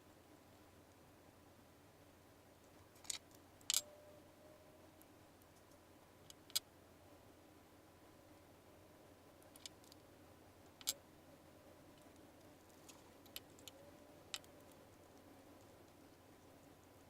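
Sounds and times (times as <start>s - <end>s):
small hard parts clicking: 3.0s - 3.9s, 10.7s - 11.0s.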